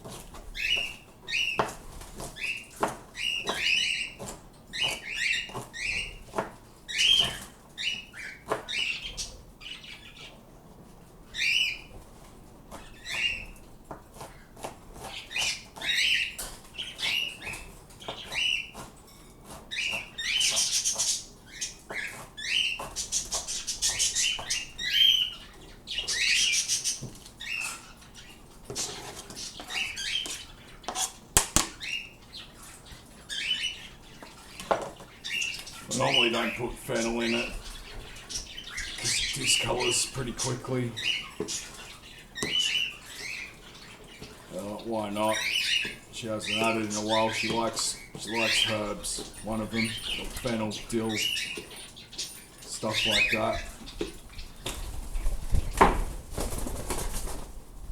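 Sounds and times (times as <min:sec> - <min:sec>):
parrots chirping calls: 0:00.1 - 0:10.4, 0:11.3 - 0:12.0, 0:12.7 - 0:54.7.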